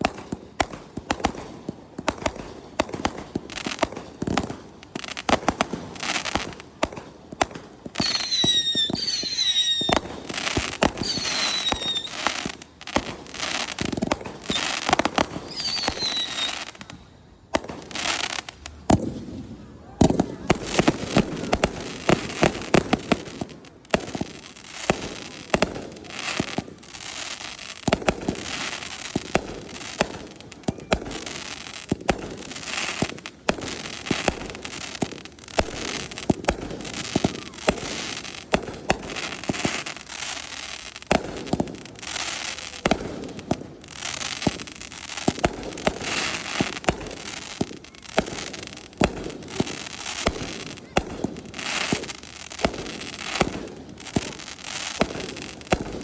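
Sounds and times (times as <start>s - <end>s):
fireworks crackling hiss: 0.0s - 56.0s.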